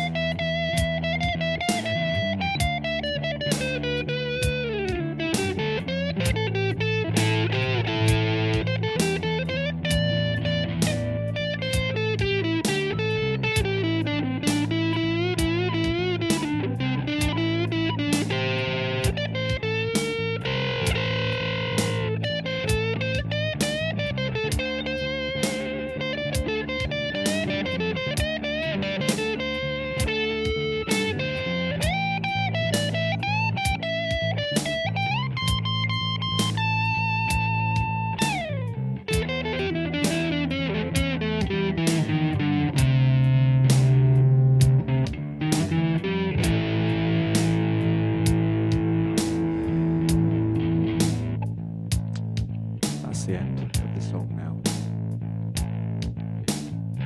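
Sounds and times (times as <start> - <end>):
electric guitar melody over beat: 0.0 - 57.0.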